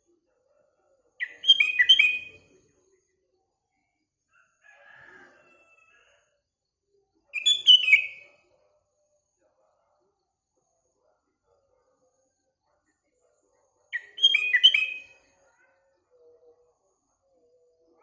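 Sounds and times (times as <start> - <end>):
bird whistling song: 1.2 - 2.4, 7.4 - 8.2, 14.0 - 15.1.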